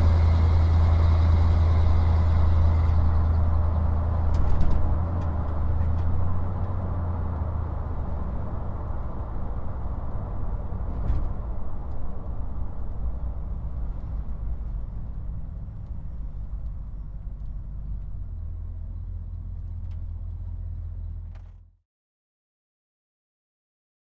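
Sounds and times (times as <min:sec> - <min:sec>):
engine and road noise drone: 0:00.0 - 0:21.7.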